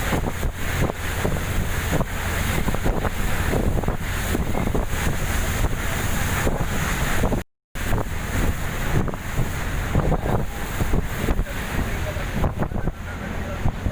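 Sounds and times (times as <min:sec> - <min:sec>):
boat engine rumble: 0:00.0 - 0:13.9
water rushing past boat: 0:00.0 - 0:13.9
wind buffeting microphone: 0:00.0 - 0:13.9.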